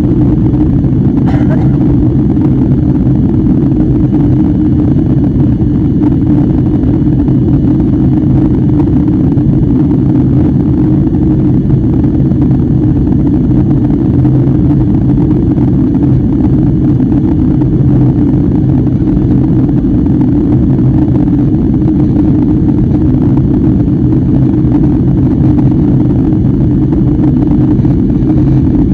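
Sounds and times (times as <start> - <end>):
jet engine cabin drone: 0.0 - 28.9.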